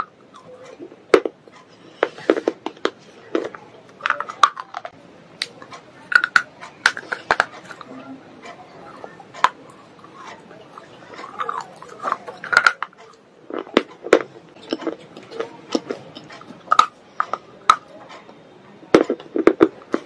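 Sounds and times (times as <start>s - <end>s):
crunchy biting and chewing: 6.1s - 17.9s.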